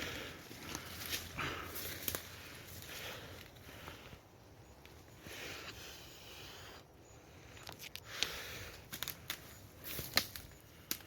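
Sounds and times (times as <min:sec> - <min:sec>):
rustling through brush: 0:00.0 - 0:04.2, 0:07.7 - 0:11.0
twigs cracking underfoot: 0:00.0 - 0:04.2, 0:07.6 - 0:11.0.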